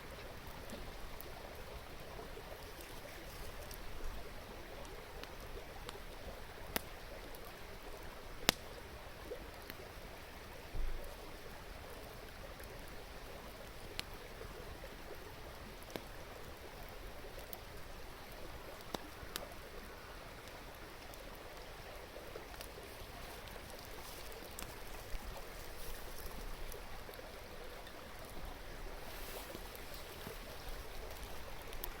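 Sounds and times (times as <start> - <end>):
wood fire crackling and popping: 0.2 - 9.9, 15.5 - 32.0.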